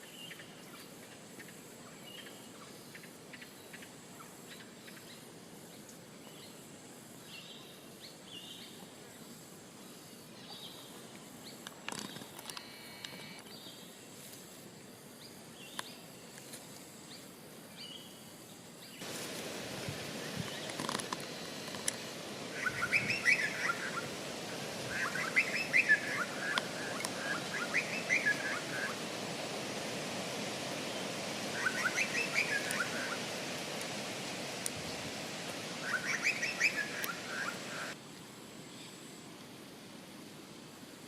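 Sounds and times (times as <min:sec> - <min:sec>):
steady background hiss: 0:00.0 - 0:41.0.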